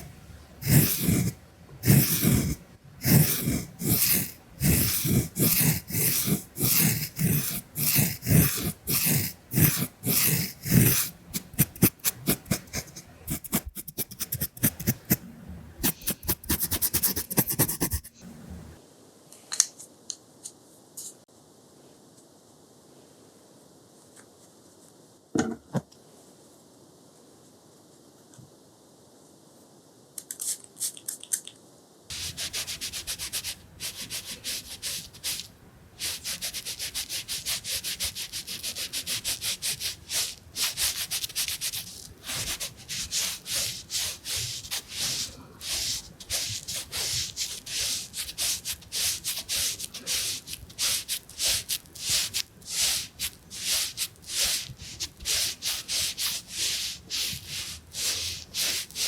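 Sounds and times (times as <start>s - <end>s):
rubbing strokes on microphone: 0.6s - 18.2s, 32.1s - 59.0s.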